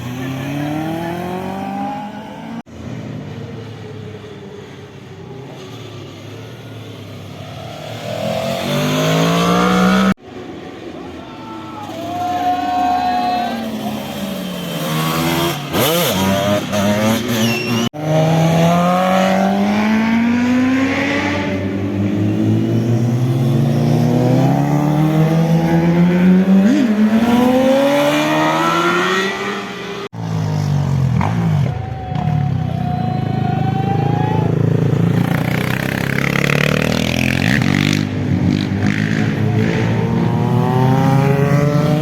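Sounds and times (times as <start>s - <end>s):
motorcycle engines accelerating: 0.0s - 10.8s, 11.8s - 42.0s.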